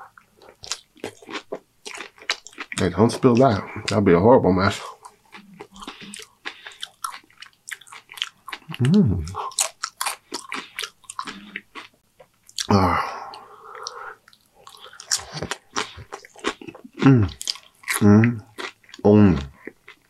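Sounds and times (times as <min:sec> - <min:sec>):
wet chewing with crunches: 0:00.2 - 0:04.0, 0:04.7 - 0:12.7, 0:13.8 - 0:20.0
person humming briefly: 0:08.8 - 0:09.4.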